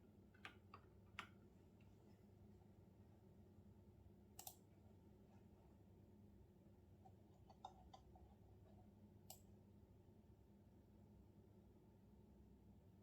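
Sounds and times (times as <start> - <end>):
low room hum: 0.0 - 13.0
computer keyboard clicks: 4.4 - 4.6.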